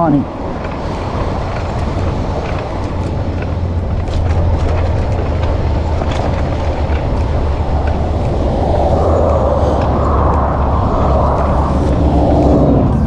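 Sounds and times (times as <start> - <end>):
e-bike rolling noise: 0.0 - 13.0
wind rumble on microphone: 0.0 - 13.0
faint clicks: 0.3 - 13.0.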